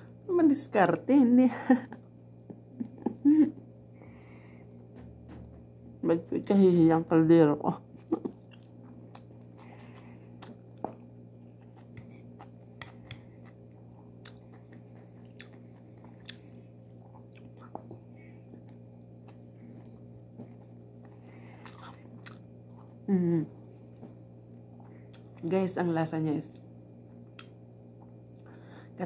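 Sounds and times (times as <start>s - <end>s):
steady low hum: 0.0s - 29.0s
chewing mouth sounds: 8.1s - 23.0s.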